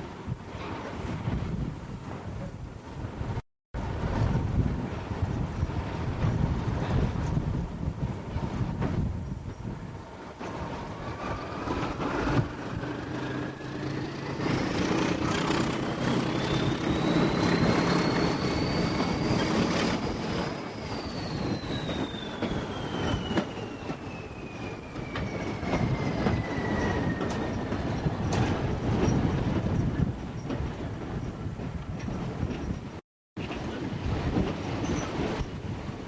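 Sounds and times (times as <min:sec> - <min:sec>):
steam train running on rails: 0:03.8 - 0:36.0
high-pitched squeal: 0:10.4 - 0:29.1.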